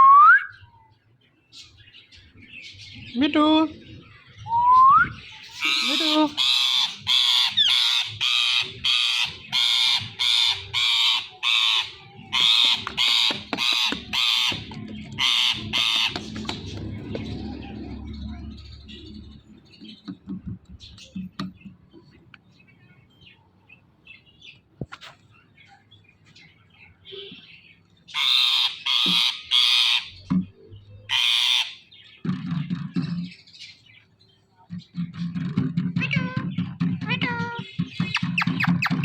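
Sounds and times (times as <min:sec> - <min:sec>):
parakeet screeching: 0:05.5 - 0:16.6, 0:28.1 - 0:30.1, 0:31.1 - 0:31.9
low rumble: 0:14.9 - 0:19.8
faint bird chirps: 0:15.3 - 0:27.9.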